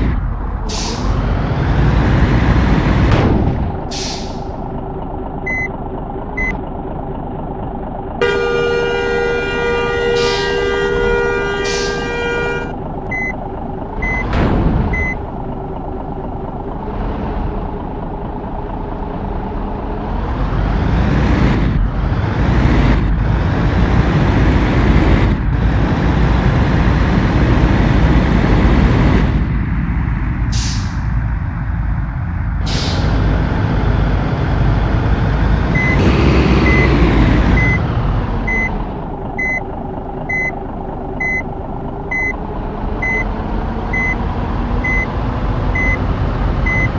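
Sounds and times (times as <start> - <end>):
diesel engine revving: 0.0 - 46.9
air brake hisses: 0.7 - 1.1, 3.9 - 4.4, 10.2 - 10.5, 11.6 - 12.0, 30.5 - 31.0, 32.6 - 33.1
truck reversing beeper: 5.4 - 6.6, 9.8 - 13.4, 14.0 - 15.3, 35.7 - 40.6, 41.2 - 41.5, 42.1 - 42.4, 43.0 - 46.9.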